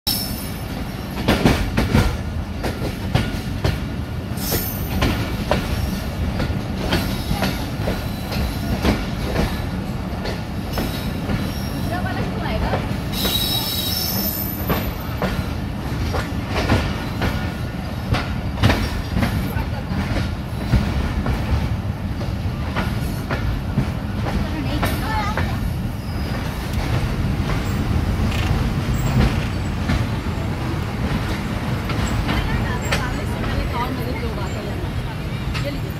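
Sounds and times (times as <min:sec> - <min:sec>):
train rumble: 0:00.1 - 0:35.9
metallic wheel squeals: 0:26.0 - 0:26.4.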